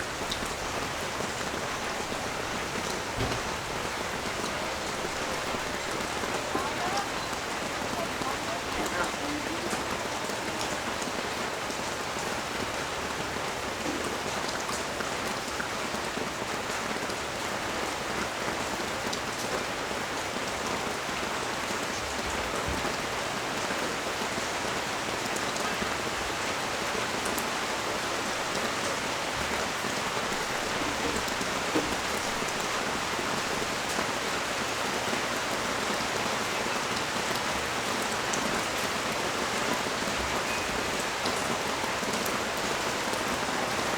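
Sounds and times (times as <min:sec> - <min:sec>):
heavy rain falling: 0:00.0 - 0:43.9
water drip: 0:29.5 - 0:34.1.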